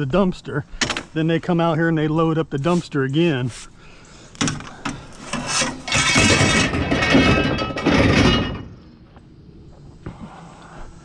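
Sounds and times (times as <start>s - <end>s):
metal junk knocks: 4.4s - 8.8s
metal scraping and clattering: 4.4s - 8.8s.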